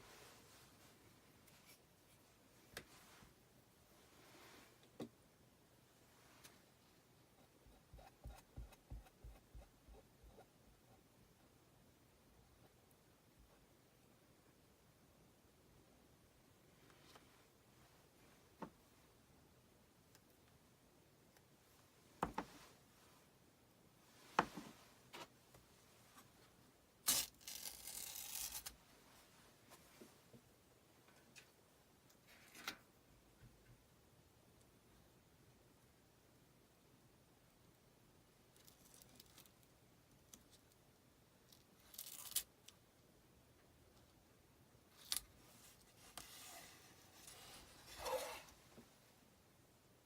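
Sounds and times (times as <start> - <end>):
soft scraping rustle: 0.0 - 3.4, 4.0 - 4.8, 45.4 - 49.0.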